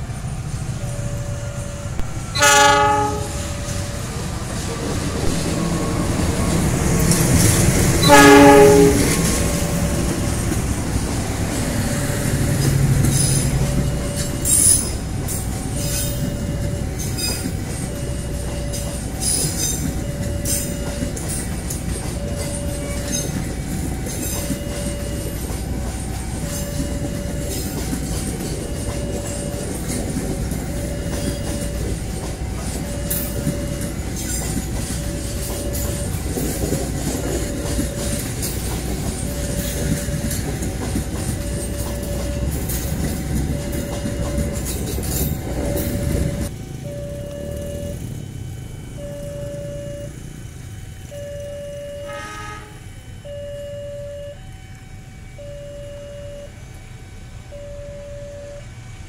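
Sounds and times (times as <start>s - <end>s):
train coaches rumbling: 0.0s - 54.3s
locomotive engine hum: 0.0s - 59.0s
locomotive horn: 1.4s - 4.2s, 7.9s - 10.2s, 51.1s - 54.4s
wheels clacking over rail joints: 1.9s - 46.8s.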